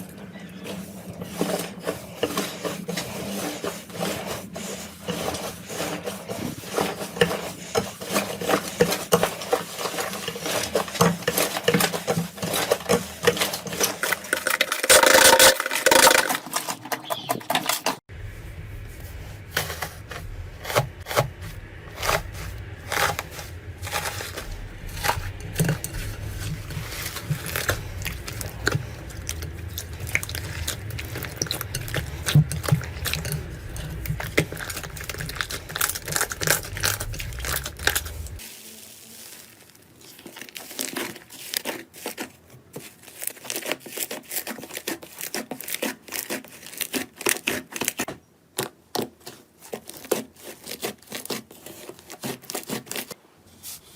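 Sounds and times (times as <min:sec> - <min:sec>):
slime crackling and popping: 0:22.9 - 0:41.7.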